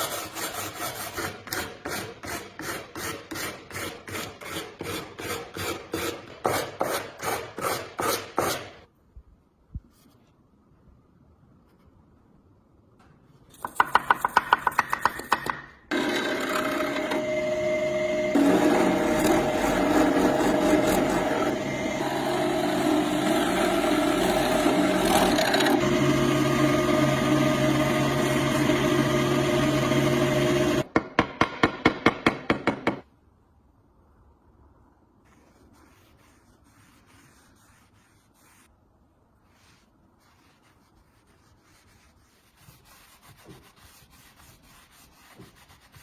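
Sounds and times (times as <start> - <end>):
rapid scraping or filing strokes: 0.0 - 8.8, 15.9 - 30.8
power tool running against metal: 15.9 - 30.9.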